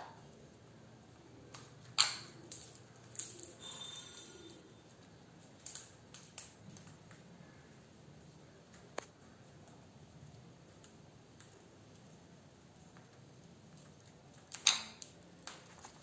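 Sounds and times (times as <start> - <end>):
faint high tone: 3.6 - 4.9.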